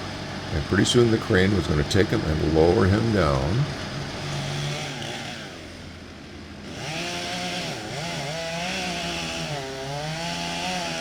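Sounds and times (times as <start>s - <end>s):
chainsaw engine running: 0.0s - 6.0s, 6.6s - 11.0s.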